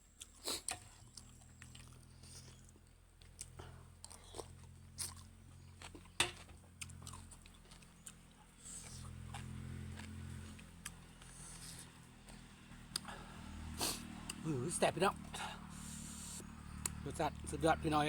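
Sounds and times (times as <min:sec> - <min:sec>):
person chewing noodle soup: 0:00.0 - 0:14.4, 0:15.2 - 0:17.0
steady low hum: 0:00.9 - 0:18.0.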